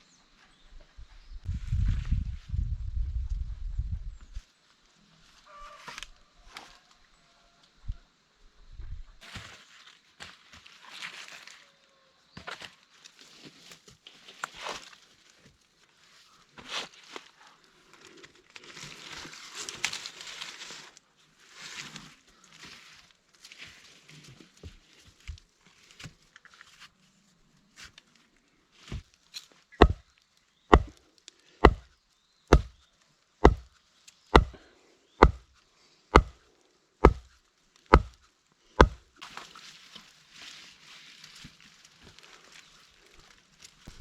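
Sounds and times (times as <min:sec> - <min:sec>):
rustling through leaves: 0:09.2 - 0:44.0
chopping blows into wood: 0:29.8 - 0:30.0, 0:30.7 - 0:31.0, 0:31.6 - 0:31.8, 0:32.5 - 0:32.8, 0:33.4 - 0:33.7, 0:34.3 - 0:34.6, 0:35.2 - 0:35.5, 0:36.1 - 0:36.4, 0:37.0 - 0:37.3, 0:37.9 - 0:38.2, 0:38.8 - 0:39.1.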